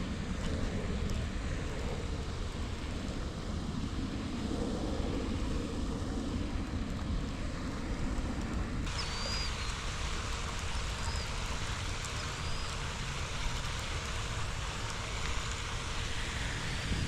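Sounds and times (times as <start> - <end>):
wind buffeting microphone: 0.0 - 17.0
faint high bird chirps: 8.9 - 9.8, 10.8 - 11.4, 12.3 - 12.8.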